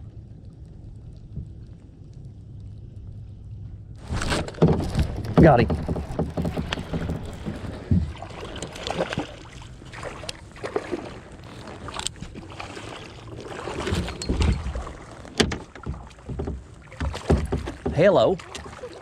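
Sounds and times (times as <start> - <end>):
water sloshing: 4.0 - 19.0
knocks against kayak hull: 4.1 - 9.3, 15.3 - 18.7.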